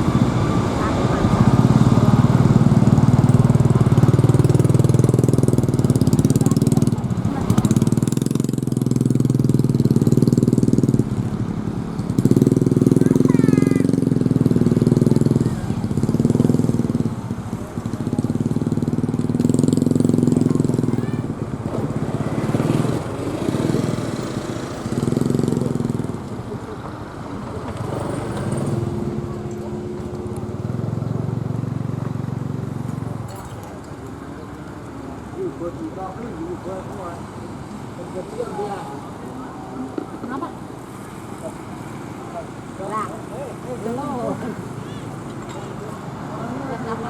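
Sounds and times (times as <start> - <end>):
small engine idling: 0.0 - 47.0.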